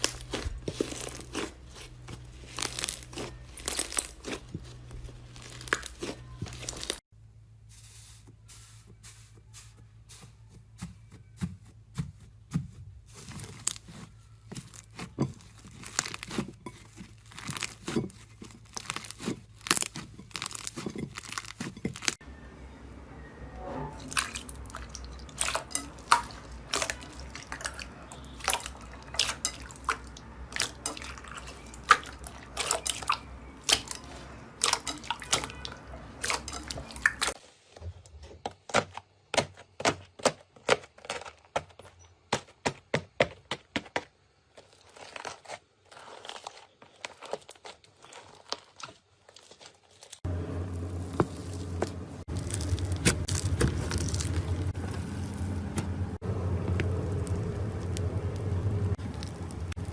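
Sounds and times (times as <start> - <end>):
low background hum: 50.3 - 59.9.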